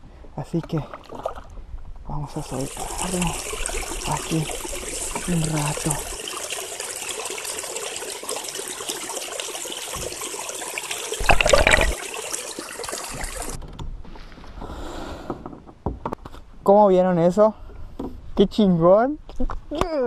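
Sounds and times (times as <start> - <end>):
water sloshing and trickling: 0.4 - 14.5
water splash: 11.2 - 13.6.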